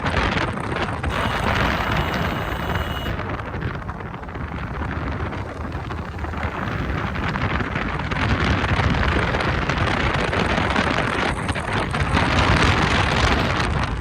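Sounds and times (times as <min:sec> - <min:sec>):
motorcycle road and engine noise: 0:00.0 - 0:14.0
wind rushing over microphone: 0:00.0 - 0:14.0.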